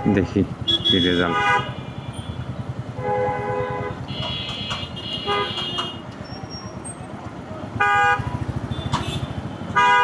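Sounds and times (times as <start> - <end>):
vehicle horns honking: 0.0 - 6.1, 7.7 - 10.0
motorcycle engine running: 0.4 - 5.0, 8.2 - 9.6.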